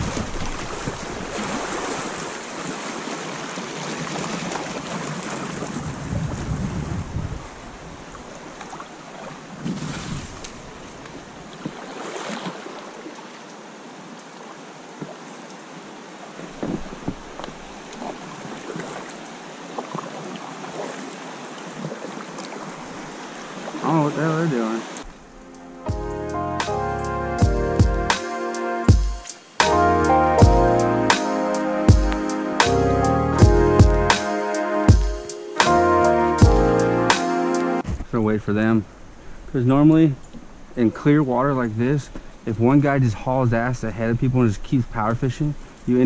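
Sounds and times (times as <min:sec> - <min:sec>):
wind buffeting microphone: 0:00.0 - 0:02.3, 0:05.2 - 0:08.3, 0:16.4 - 0:18.8
river rapid rushing: 0:00.0 - 0:06.1, 0:10.3 - 0:25.7
splashes or knocks on kayak: 0:00.0 - 0:07.0, 0:08.6 - 0:12.9, 0:16.4 - 0:23.9.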